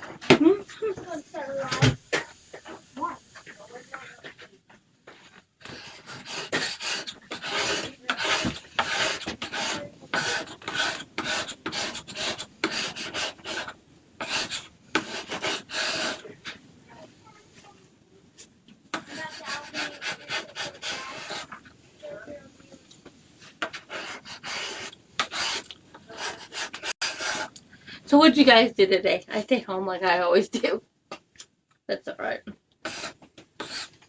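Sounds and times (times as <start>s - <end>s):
scraping strokes on a board: 0.0s - 16.6s, 18.4s - 22.8s, 23.4s - 27.6s, 32.8s - 34.0s.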